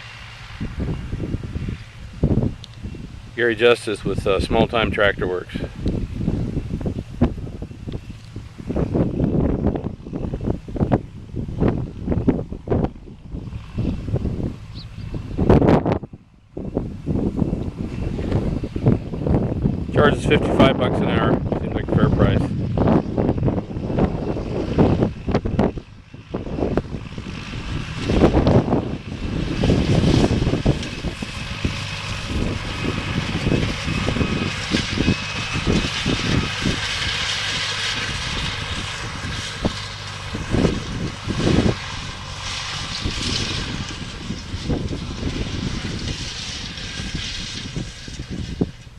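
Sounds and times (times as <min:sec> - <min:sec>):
tractor engine running: 0:00.0 - 0:48.9
wind buffeting microphone: 0:00.0 - 0:48.9.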